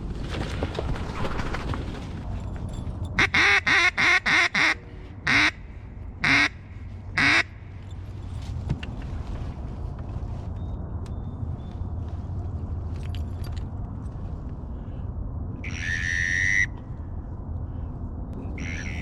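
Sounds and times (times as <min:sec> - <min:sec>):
duck call quacks: 0:03.2 - 0:05.6, 0:06.2 - 0:06.6, 0:07.2 - 0:07.5, 0:15.6 - 0:16.8, 0:18.5 - 0:19.0.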